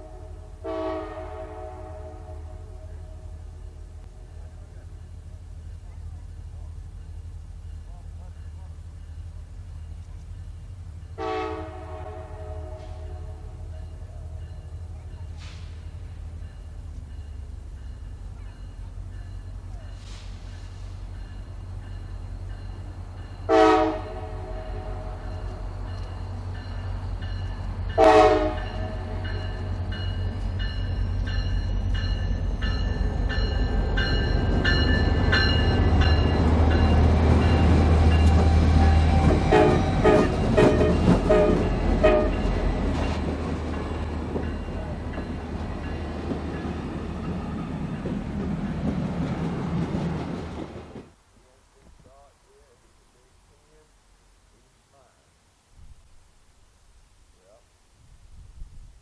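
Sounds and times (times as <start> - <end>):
diesel locomotive horn: 0.0 - 6.0, 10.9 - 16.3, 23.4 - 26.8, 27.9 - 30.5, 33.4 - 43.1
train rumbling past: 0.0 - 53.9.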